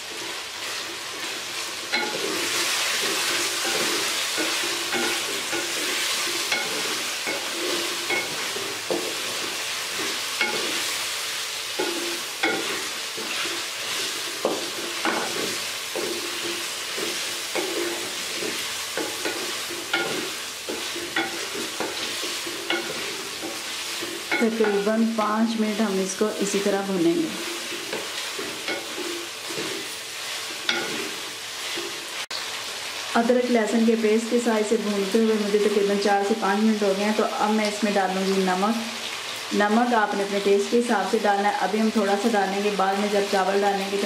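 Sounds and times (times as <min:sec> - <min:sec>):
chicken sizzling in oil: 0:00.0 - 0:44.0
wooden spatula scraping pot: 0:27.3 - 0:32.0.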